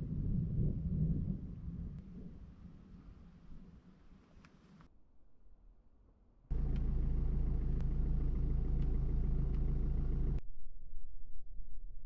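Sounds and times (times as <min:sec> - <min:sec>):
car engine idling: 0:06.5 - 0:10.4.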